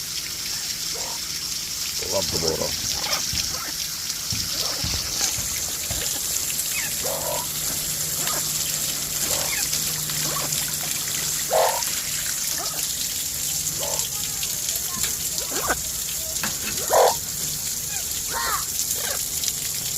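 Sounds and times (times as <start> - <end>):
garden hose spraying water: 0.0 - 19.9
parrots squawking: 6.7 - 7.6, 9.2 - 11.9, 13.8 - 14.1, 16.8 - 17.2.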